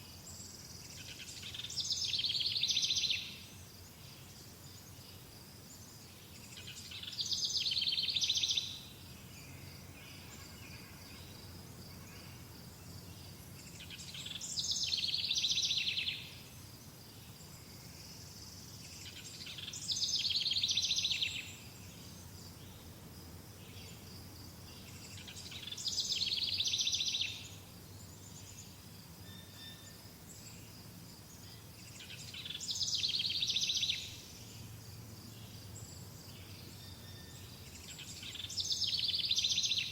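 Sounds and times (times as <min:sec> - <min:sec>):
songbird trilling: 0:25.1 - 0:27.6.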